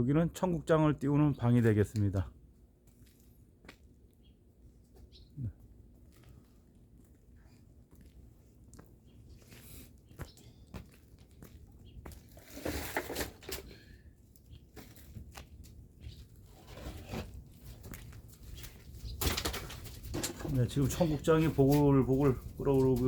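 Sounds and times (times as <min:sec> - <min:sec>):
wood fire crackling: 0:14.3 - 0:23.0.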